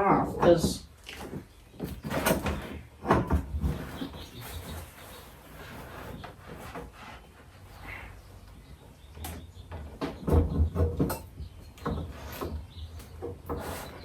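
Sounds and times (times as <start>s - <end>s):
rubbing and rustling: 0.9s - 8.8s, 11.9s - 14.0s.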